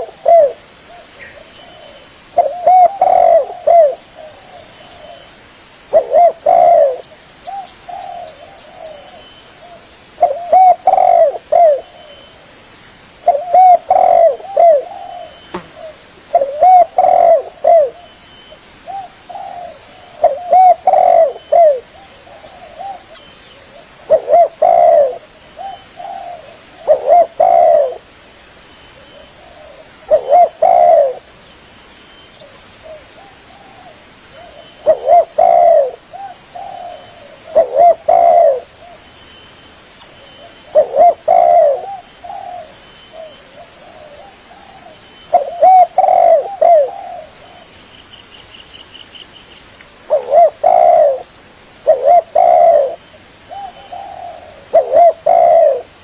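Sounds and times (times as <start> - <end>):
dove cooing: 0.0 - 5.3, 5.9 - 12.4, 13.2 - 18.2, 18.9 - 28.1, 29.0 - 31.3, 32.4 - 39.0, 40.3 - 47.7, 50.1 - 56.0.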